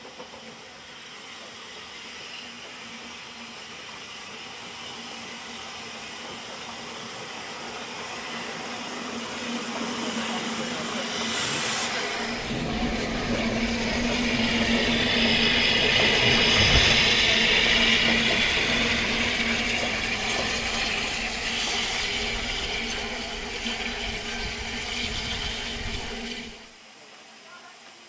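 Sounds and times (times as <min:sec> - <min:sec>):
steam hissing: 0:00.2 - 0:26.8
steam train rumbling: 0:05.6 - 0:26.8
constant hum: 0:12.2 - 0:26.7.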